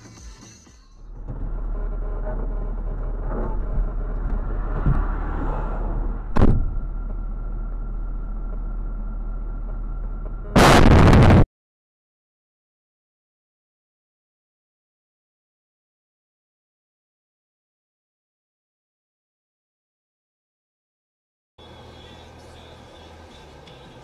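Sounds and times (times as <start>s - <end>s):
car road and engine noise: 1.0s - 11.4s, 21.6s - 24.0s
sharp bang: 6.3s - 6.9s
loud distorted noise burst: 10.2s - 11.5s.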